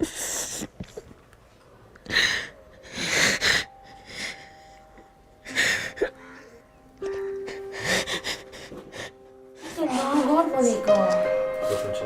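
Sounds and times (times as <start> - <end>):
person sobbing: 5.4 - 10.4.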